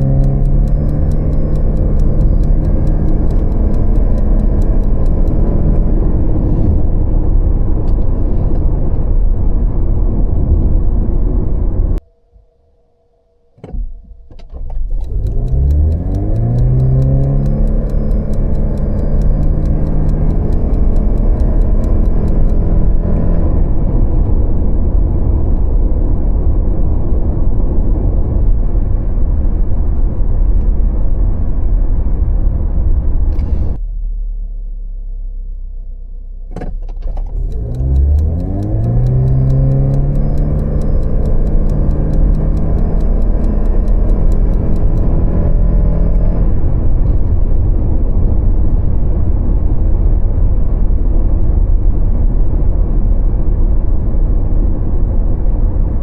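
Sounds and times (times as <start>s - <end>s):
sharp click: 0.0s - 5.6s, 13.6s - 23.3s, 36.6s - 45.2s
car engine revving: 0.0s - 6.8s, 14.8s - 23.7s, 37.3s - 46.6s.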